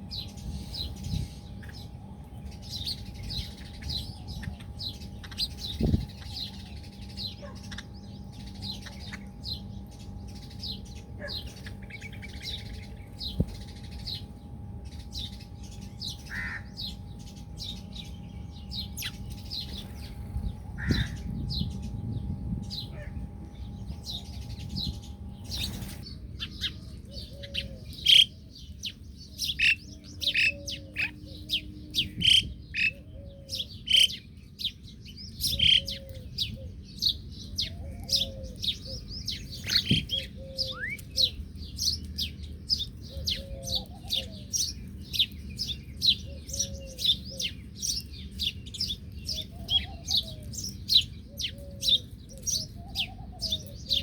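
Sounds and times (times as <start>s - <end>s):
small birds chirping: 0.0s - 54.0s
lower arched bird call: 16.1s - 16.9s.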